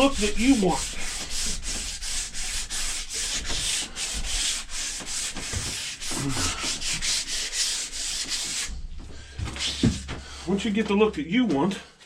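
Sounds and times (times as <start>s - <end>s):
sandpaper scratching on wood: 0.0s - 8.8s.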